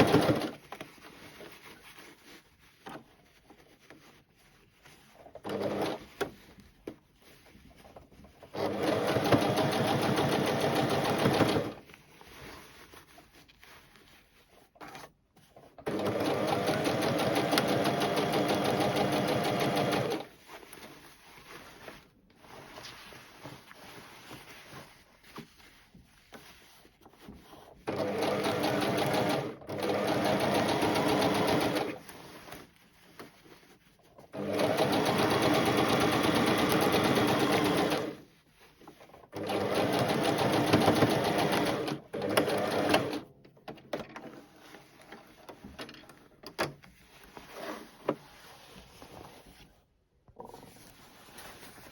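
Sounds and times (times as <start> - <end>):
sewing machine stitching: 0.0 - 0.6, 5.4 - 6.2, 8.5 - 11.8, 15.8 - 20.3, 27.8 - 32.2, 34.3 - 38.2, 39.3 - 43.3.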